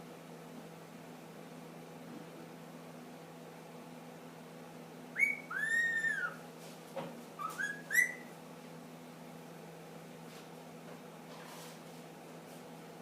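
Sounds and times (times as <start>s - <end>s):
parakeet whistling: 5.1s - 6.4s, 7.4s - 8.3s.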